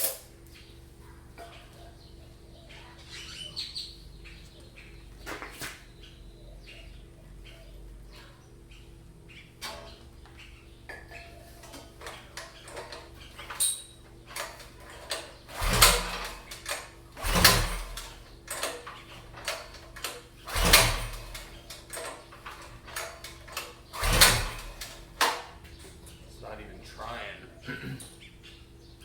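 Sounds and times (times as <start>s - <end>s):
recoil pull-starter whirr: 11.6s - 26.0s.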